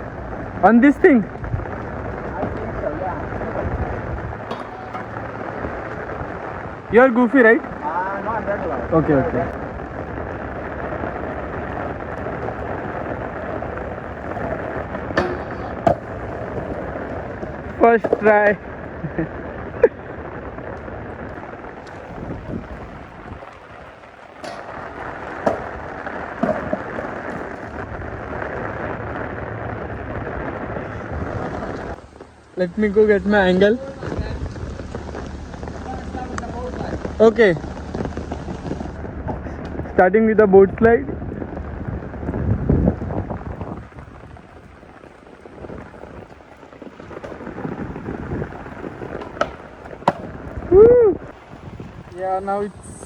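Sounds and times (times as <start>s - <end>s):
skateboard wheels rolling on concrete: 0.0s - 53.0s
steady rain: 0.0s - 53.0s
wind rumbling on microphone: 0.0s - 53.0s
skateboard knocks: 11.7s - 18.6s, 24.2s - 27.8s, 47.0s - 50.6s.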